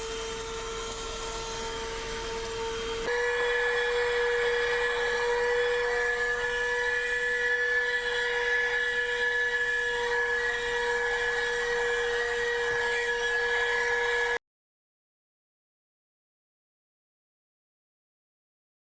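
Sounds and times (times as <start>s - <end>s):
vacuum cleaner running: 0.0s - 14.4s.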